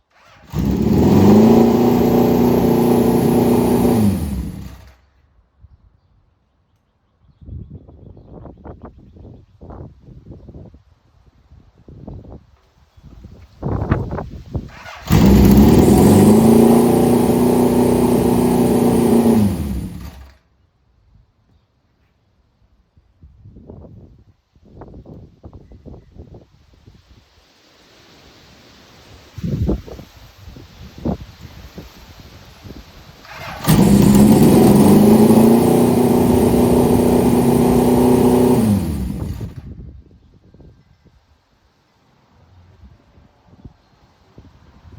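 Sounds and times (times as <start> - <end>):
motorcycle engine running: 0.2 - 5.0, 14.7 - 20.3, 33.3 - 39.7.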